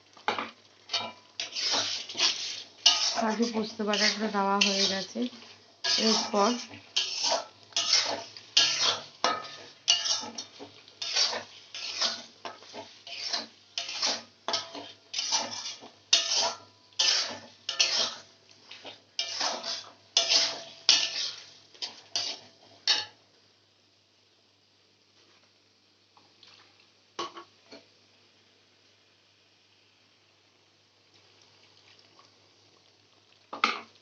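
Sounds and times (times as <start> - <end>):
spoon scraping and stirring in a pan: 0.1 - 23.2.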